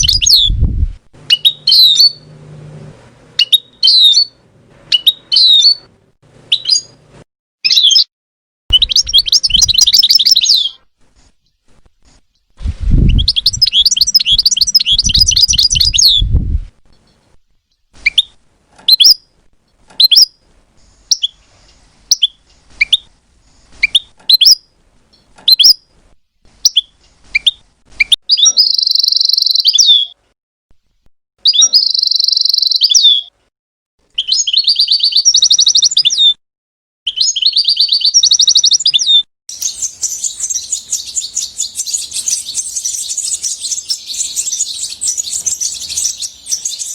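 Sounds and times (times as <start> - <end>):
goldfinch singing: 1.3 - 2.3, 8.7 - 10.8, 13.1 - 16.2, 37.2 - 46.9.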